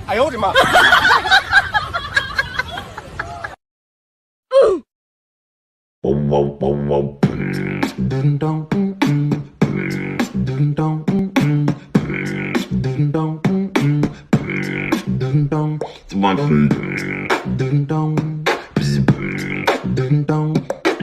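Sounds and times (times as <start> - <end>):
person humming or singing: 4.5 - 4.9, 6.0 - 21.0
beatboxing: 6.0 - 21.0.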